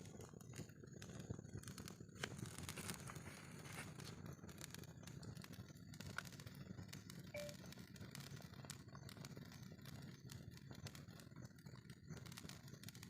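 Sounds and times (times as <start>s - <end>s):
campfire crackling and popping: 0.0s - 13.0s
low steady rush: 7.4s - 7.6s.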